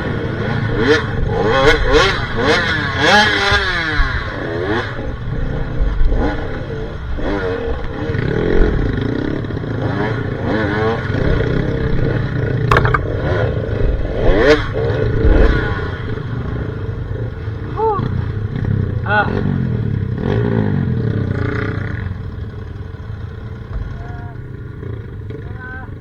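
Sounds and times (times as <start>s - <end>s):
sharp knock: 12.7s - 13.1s.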